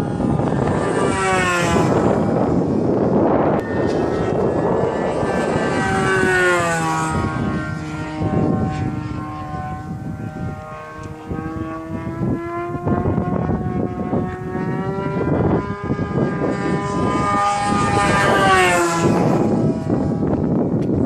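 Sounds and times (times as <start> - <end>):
model airplane engine running: 0.0 - 21.0.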